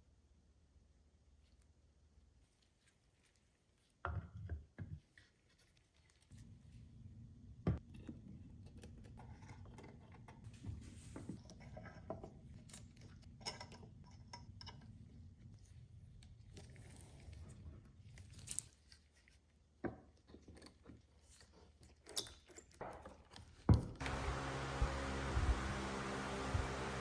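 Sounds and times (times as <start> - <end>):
low steady hum: 24.0 - 27.0.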